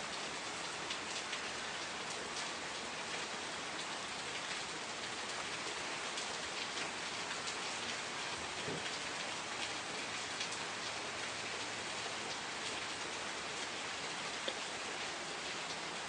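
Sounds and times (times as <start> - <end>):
rain falling: 0.0 - 16.0
raindrops pattering: 0.1 - 16.0.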